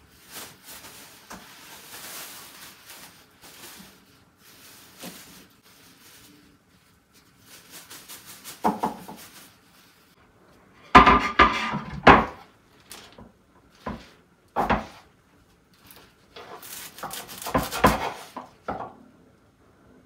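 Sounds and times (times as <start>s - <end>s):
household knocks and clatters: 8.6s - 9.4s, 10.8s - 12.5s, 13.2s - 15.1s, 16.4s - 19.0s.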